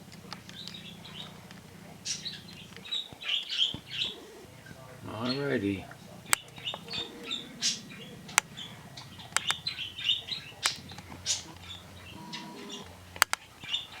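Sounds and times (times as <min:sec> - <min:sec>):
birds chirping: 0:00.0 - 0:14.0
sharp clicks: 0:00.0 - 0:14.0.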